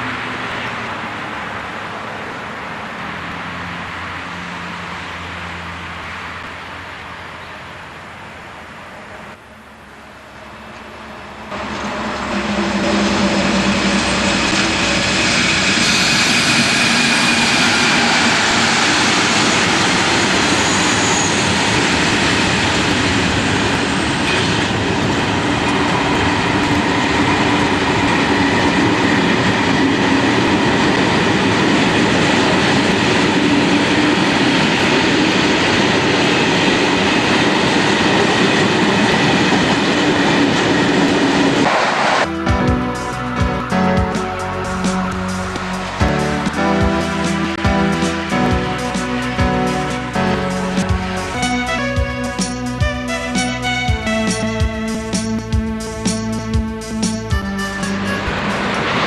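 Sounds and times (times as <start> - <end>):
diesel locomotive engine drone: 0.0 - 59.0
rail and wheel noise: 0.0 - 59.0.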